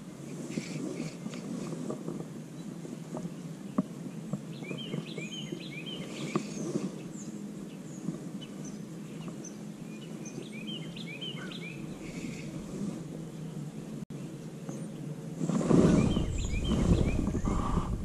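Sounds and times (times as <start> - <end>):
low outdoor background noise: 0.0 - 18.0
songbird chirping: 2.5 - 12.5, 15.8 - 17.9.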